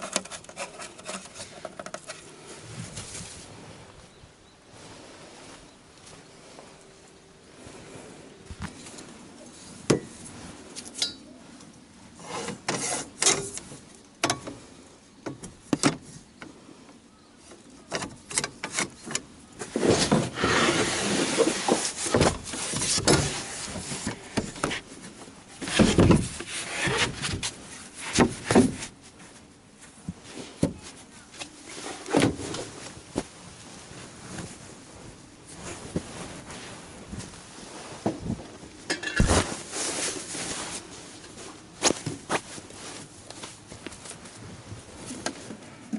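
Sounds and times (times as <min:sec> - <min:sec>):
rustling: 0:18.6 - 0:45.9.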